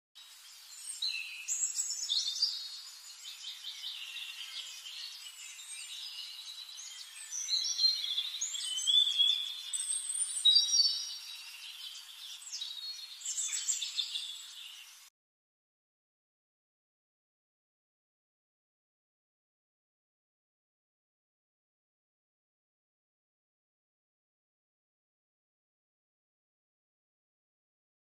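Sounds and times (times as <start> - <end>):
birds chirping and singing: 0.2 - 15.1.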